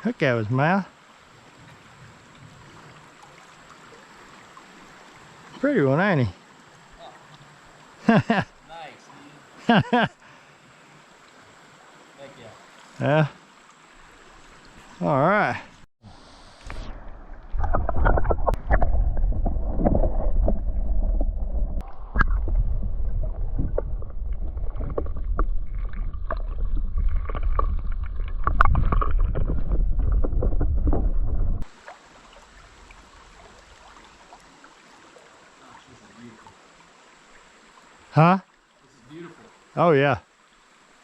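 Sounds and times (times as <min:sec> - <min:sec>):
hiss of flowing water: 0:00.0 - 0:17.2, 0:31.6 - 0:41.0
rumble of water and wind: 0:01.2 - 0:06.1, 0:16.2 - 0:34.4.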